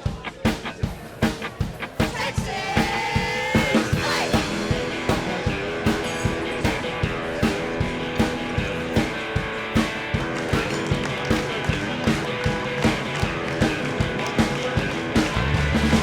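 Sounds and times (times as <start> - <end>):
rock drum beat: 0.0 - 16.0
electric guitar: 0.5 - 16.0.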